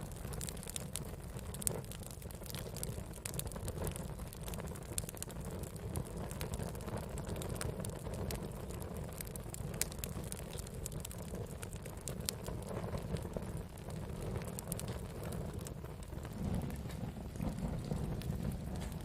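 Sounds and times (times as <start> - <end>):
campfire crackling: 0.0 - 19.0
low rumble: 15.6 - 19.0.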